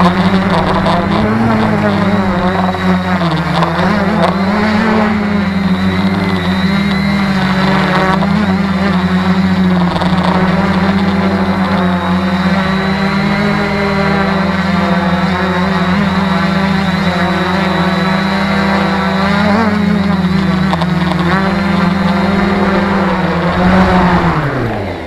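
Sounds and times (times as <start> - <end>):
drone motors and propellers humming: 0.0 - 25.0
wind noise on microphone: 19.8 - 25.0.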